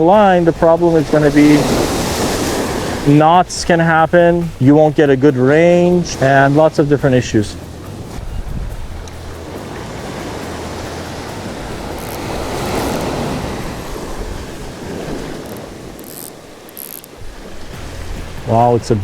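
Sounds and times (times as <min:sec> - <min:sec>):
surf breaking on shore: 0:00.0 - 0:19.0
wind buffeting microphone: 0:00.0 - 0:19.0.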